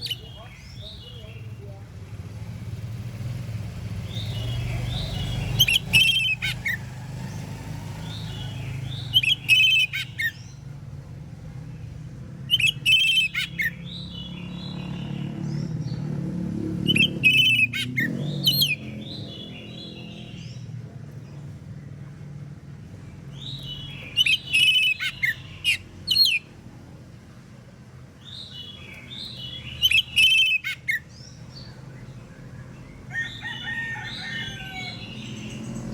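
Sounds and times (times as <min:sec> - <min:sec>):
quiet bird chirps: 0:00.0 - 0:16.2
bird singing whistled phrases: 0:04.1 - 0:06.8, 0:08.0 - 0:10.4, 0:12.5 - 0:15.0, 0:28.3 - 0:31.1.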